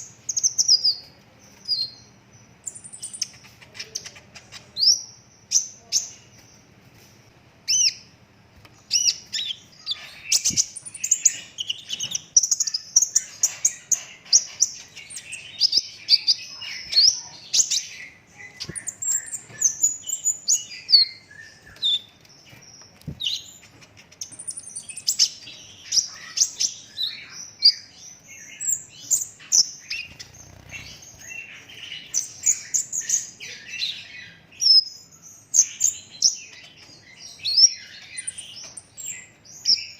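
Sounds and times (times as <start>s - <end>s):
sunbird singing rapid trills: 8.9s - 39.9s.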